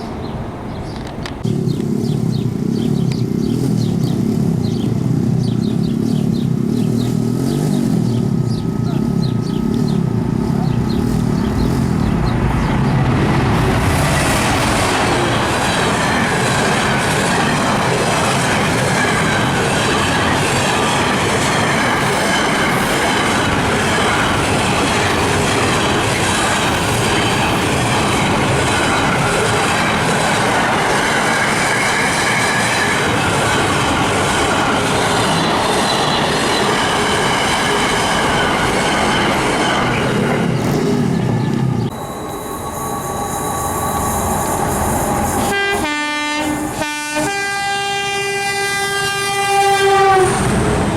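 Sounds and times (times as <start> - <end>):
train rail rumble: 0.0 - 50.9
faint wavering wheel squeal: 41.9 - 45.6.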